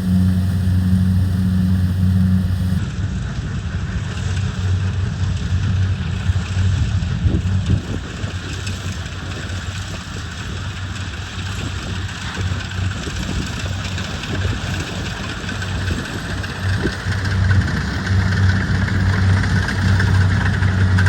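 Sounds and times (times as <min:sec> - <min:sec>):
combine harvester engine: 0:00.0 - 0:02.8, 0:08.6 - 0:21.0
rushing noise: 0:00.0 - 0:02.8.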